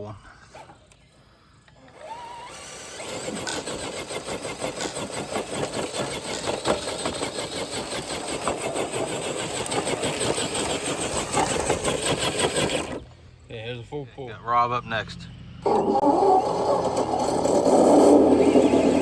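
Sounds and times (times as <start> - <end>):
toy truck electric drivetrain: 0.5 - 13.2, 15.6 - 19.0
dense scraping rattle: 2.0 - 13.2, 15.6 - 19.0.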